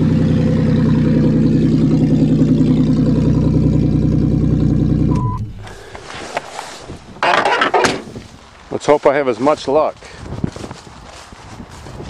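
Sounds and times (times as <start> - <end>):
car engine running: 0.0 - 6.4.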